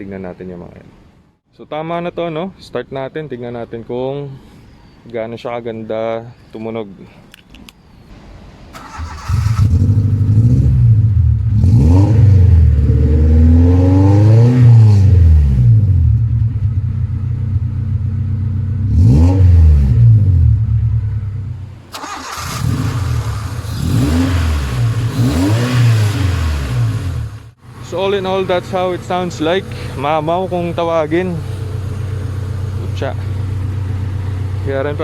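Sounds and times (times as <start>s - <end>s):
car engine starting and idling: 8.1s - 35.0s
car engine revving: 8.8s - 16.8s, 18.4s - 35.0s.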